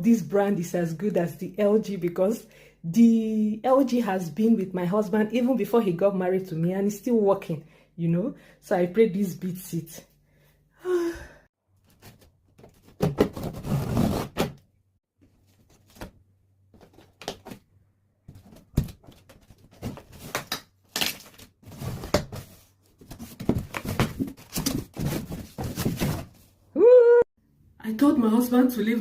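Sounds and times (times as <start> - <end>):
cardboard scraping and rustling: 11.9 - 14.6, 21.1 - 26.6.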